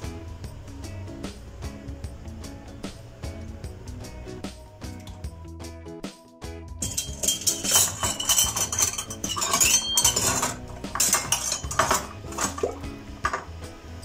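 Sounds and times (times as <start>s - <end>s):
kitchenware clinking and clattering: 6.8s - 14.0s.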